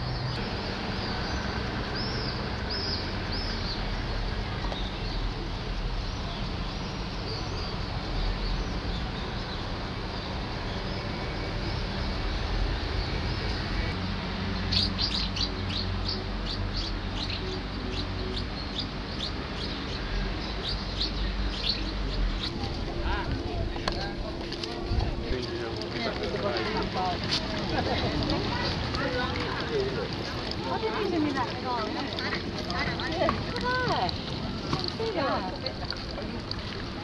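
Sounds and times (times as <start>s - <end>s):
small birds chirping: 14.6s - 22.9s.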